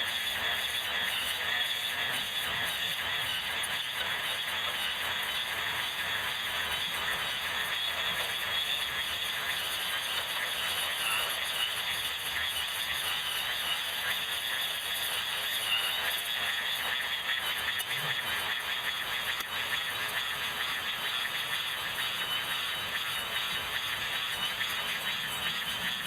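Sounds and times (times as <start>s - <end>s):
electric grass trimmer cutting: 10.4s - 26.0s.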